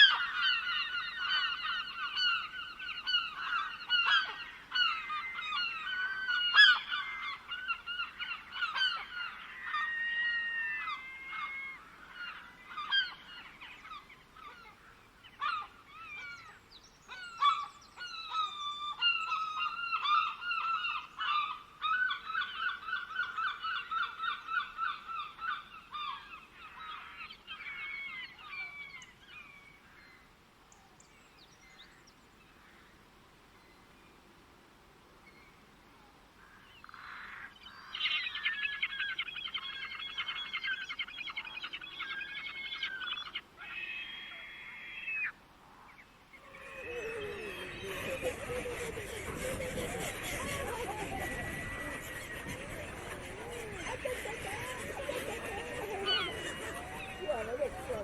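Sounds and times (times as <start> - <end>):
birds calling: 46.4 - 58.0.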